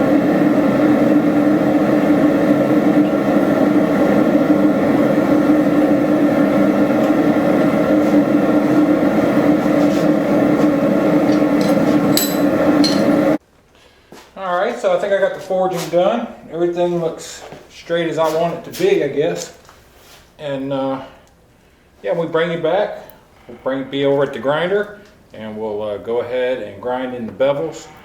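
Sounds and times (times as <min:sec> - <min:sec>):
forge roaring: 0:00.0 - 0:13.4.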